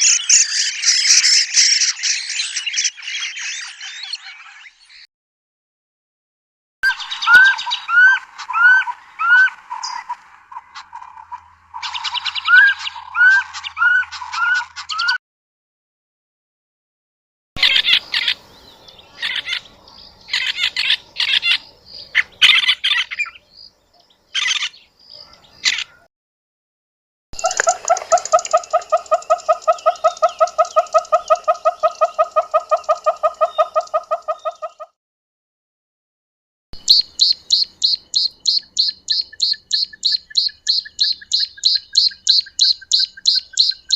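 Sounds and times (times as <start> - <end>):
high bird chatter: 0.0 - 5.1, 6.9 - 15.2, 17.6 - 26.1, 27.4 - 34.9, 36.8 - 43.9
upslurred bird call: 6.9 - 15.2, 27.4 - 34.9.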